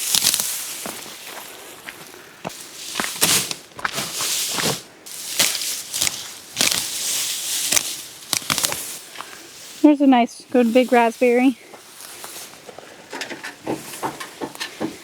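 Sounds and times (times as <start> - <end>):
tall grass being cut: 2.8 - 12.5.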